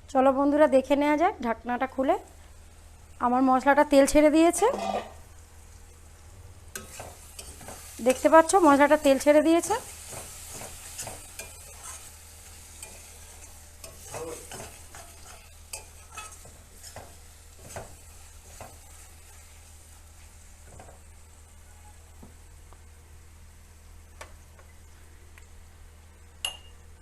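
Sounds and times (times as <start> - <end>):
faint oil sizzle: 0.0 - 27.0
spatula scraping a pan: 4.6 - 5.2, 6.7 - 8.3, 9.0 - 19.5.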